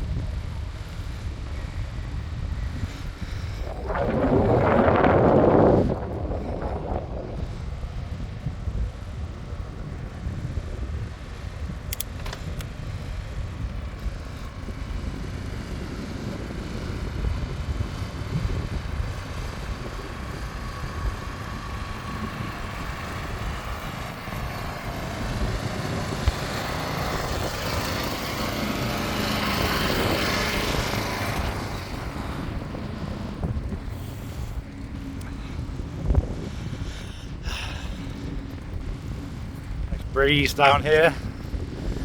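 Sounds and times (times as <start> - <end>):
passing motor vehicle: 0.0 - 42.0
wind buffeting microphone: 0.0 - 42.0
sharp clicks: 11.9 - 12.7.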